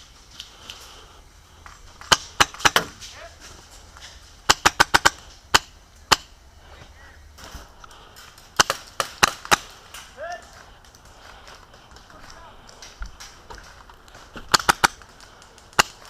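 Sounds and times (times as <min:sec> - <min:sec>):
airsoft gun shots: 0:02.0 - 0:03.0, 0:04.4 - 0:06.4, 0:14.4 - 0:15.0.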